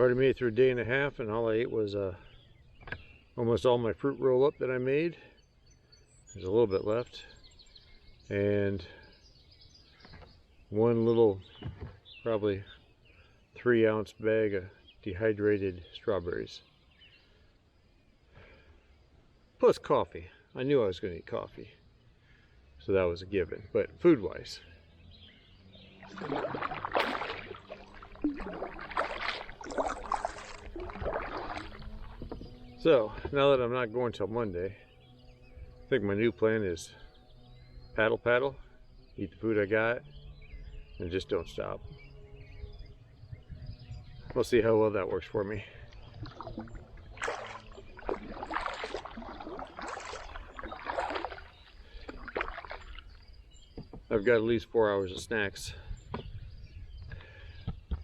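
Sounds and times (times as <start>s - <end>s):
kayak paddle splashing: 25.7s - 33.5s, 45.3s - 54.2s
water dripping: 26.0s - 33.4s, 45.9s - 54.1s.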